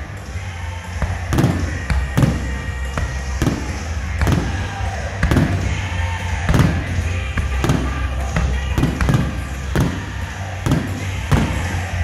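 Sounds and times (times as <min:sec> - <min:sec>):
fireworks booming: 0:01.2 - 0:12.0.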